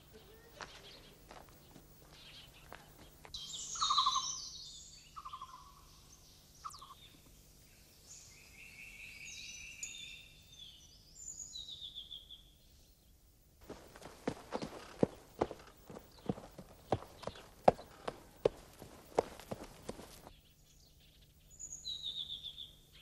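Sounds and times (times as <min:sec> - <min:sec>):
small birds trilling: 0:00.0 - 0:12.6, 0:13.7 - 0:23.0
high twittering chirps: 0:02.1 - 0:07.2, 0:13.7 - 0:20.3.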